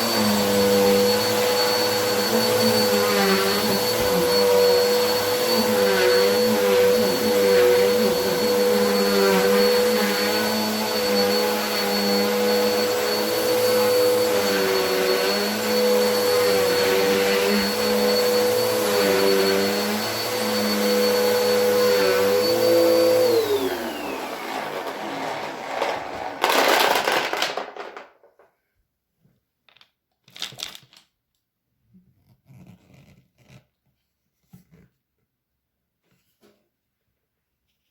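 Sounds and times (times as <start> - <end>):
vacuum cleaner motor whining: 0.0 - 28.0.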